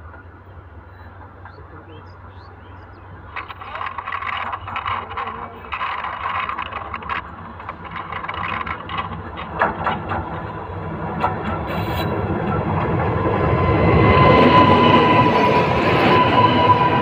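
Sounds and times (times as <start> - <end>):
train rumbling on track: 0.0 - 17.0
scraping and rattling: 3.2 - 13.2.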